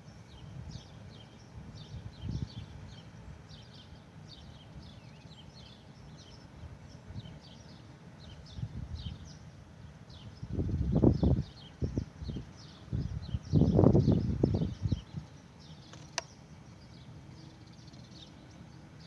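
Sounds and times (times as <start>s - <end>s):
small birds chirping: 0.1s - 19.0s.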